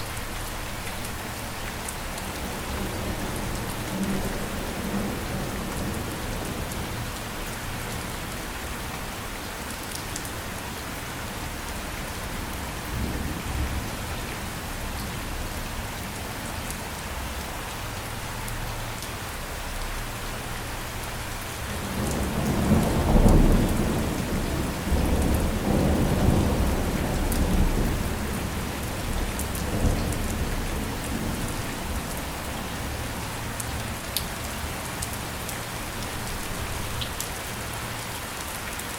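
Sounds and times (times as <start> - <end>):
steady rain falling: 0.0 - 38.9
low rumble of thunder: 2.2 - 9.4, 11.4 - 16.3, 21.6 - 34.1.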